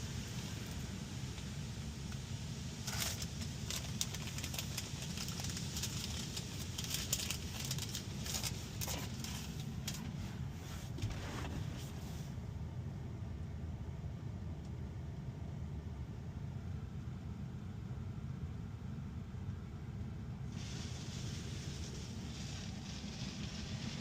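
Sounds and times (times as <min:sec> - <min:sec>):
high-pressure water spray hissing: 0:00.0 - 0:09.8, 0:20.5 - 0:24.0
low drone of wash machinery: 0:00.0 - 0:24.0.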